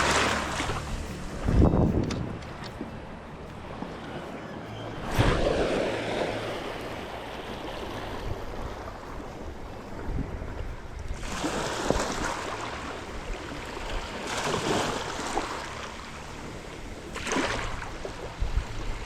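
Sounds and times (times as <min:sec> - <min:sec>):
sea water washing in: 0:00.0 - 0:19.0
steady low rumble: 0:00.0 - 0:19.0.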